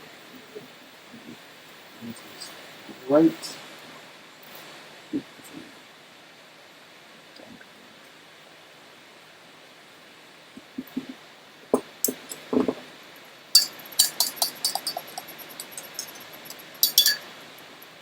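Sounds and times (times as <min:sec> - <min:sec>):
kitchen utensils and dishes clinking: 0:11.8 - 0:12.7, 0:13.6 - 0:18.0.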